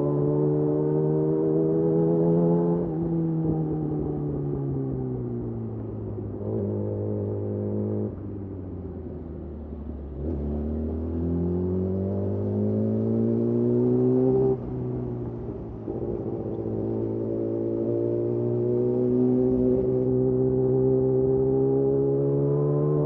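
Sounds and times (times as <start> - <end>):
motorcycle engine accelerating: 6.3 - 23.0.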